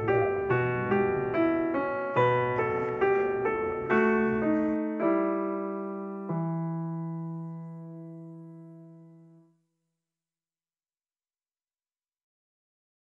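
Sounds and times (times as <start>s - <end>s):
piano melody: 0.0s - 9.5s.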